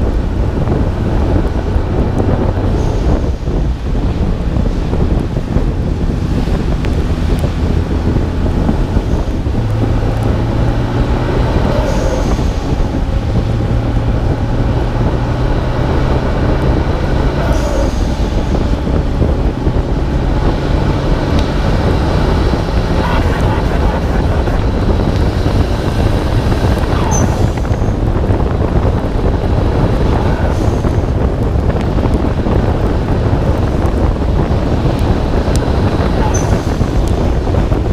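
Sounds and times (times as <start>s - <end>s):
car engine drone: 0.0s - 37.9s
wind rush on microphone: 0.0s - 37.9s
tyres hissing on wet road: 2.6s - 3.7s, 8.6s - 14.0s, 17.0s - 19.0s.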